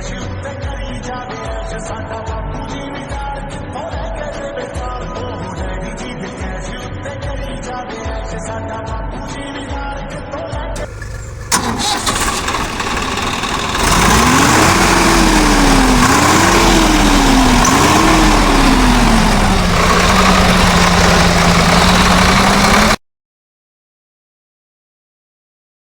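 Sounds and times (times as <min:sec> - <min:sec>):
tractor diesel engine revving: 0:10.8 - 0:23.0.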